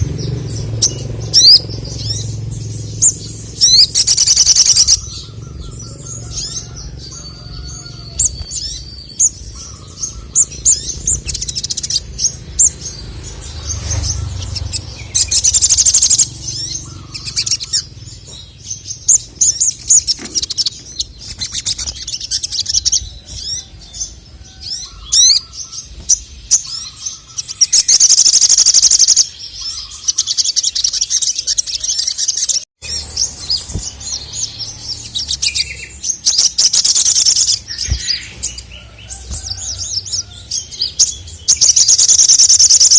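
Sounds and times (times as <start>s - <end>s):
sunbird chirping and trilling: 0.0s - 42.9s.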